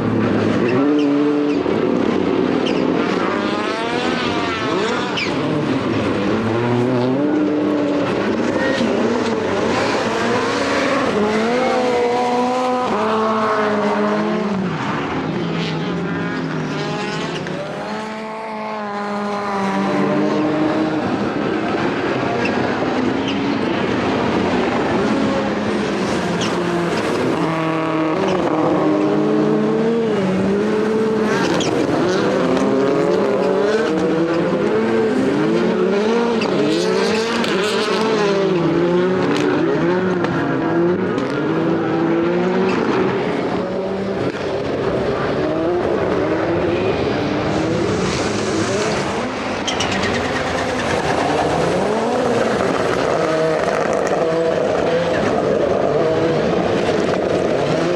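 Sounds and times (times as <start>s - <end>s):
racing car engines revving: 0.0s - 57.9s.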